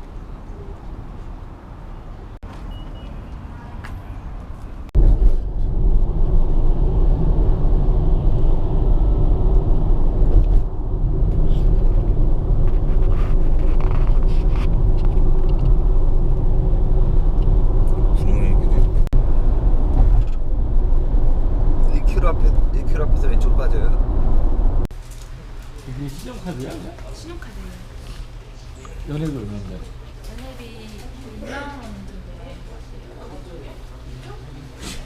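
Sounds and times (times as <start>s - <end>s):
car interior rumble and hum: 5.0s - 24.9s.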